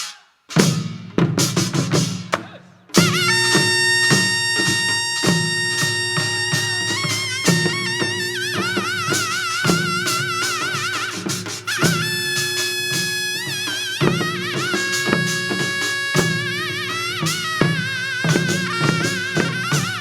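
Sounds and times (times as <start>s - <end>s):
loud drum strokes: 0.0s - 20.0s
reedy wind melody with vibrato: 3.0s - 20.0s.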